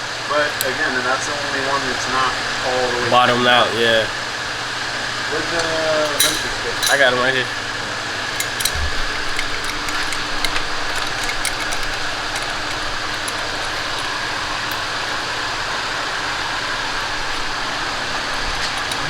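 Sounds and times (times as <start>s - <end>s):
mechanical whirring: 0.0s - 19.0s
wrenches clinking: 5.6s - 7.4s, 8.2s - 19.0s.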